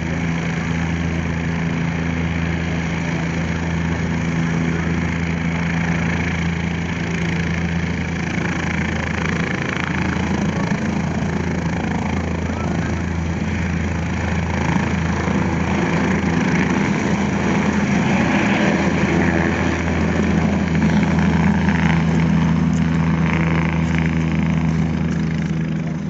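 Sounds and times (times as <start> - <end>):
helicopter engine and rotor drone: 0.0 - 26.0.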